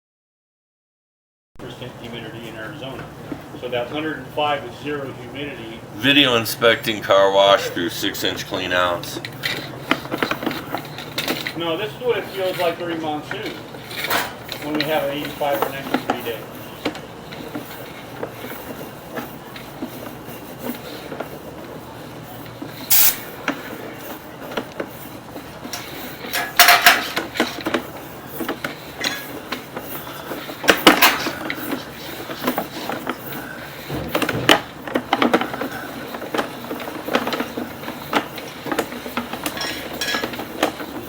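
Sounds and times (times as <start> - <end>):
metallic clanks and rattles of cable: 9.2 - 41.0.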